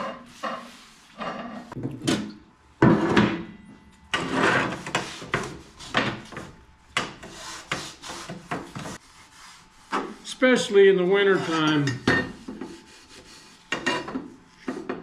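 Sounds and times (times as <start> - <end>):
scraping and rubbing steel: 4.1 - 6.4, 7.2 - 15.0.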